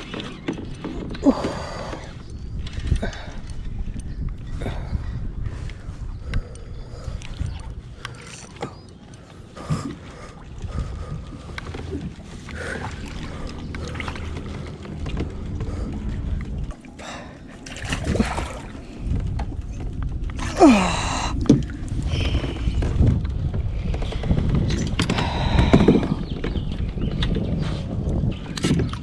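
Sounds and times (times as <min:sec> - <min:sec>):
knocks and clicks: 0:00.0 - 0:04.4
water rumbling: 0:00.0 - 0:26.4.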